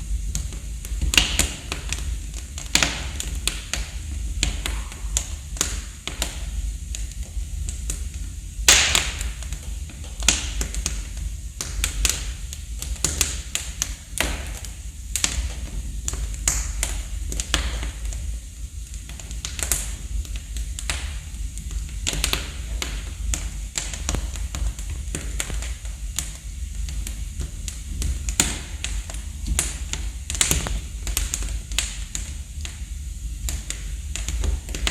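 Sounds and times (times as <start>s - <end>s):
fire low rumble: 0.0s - 34.9s
wood fire crackling and popping: 0.0s - 34.9s.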